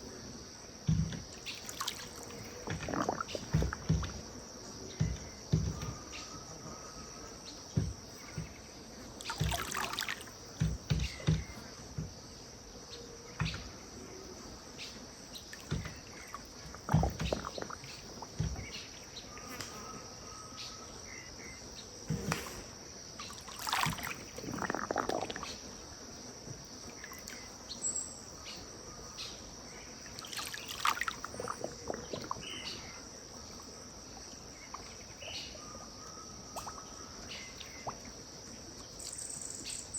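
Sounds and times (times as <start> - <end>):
water lapping and splashing: 1.1 - 6.2, 7.8 - 11.6, 15.3 - 19.7, 23.2 - 25.9, 30.0 - 38.2.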